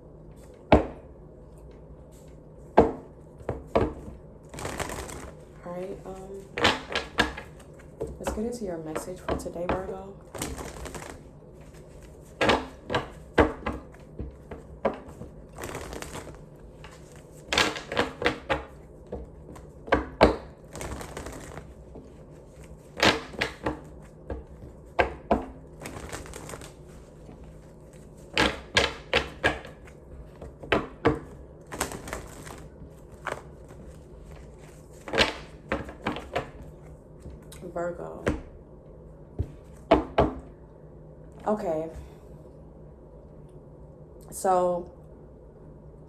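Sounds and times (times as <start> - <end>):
cards clicking and tapping: 3.8 - 5.4, 6.5 - 8.4, 9.7 - 21.7, 24.6 - 29.9, 30.6 - 36.6
cards riffling: 4.5 - 5.5, 10.3 - 13.2, 15.2 - 18.2, 20.7 - 21.8, 25.8 - 29.4, 31.7 - 36.4.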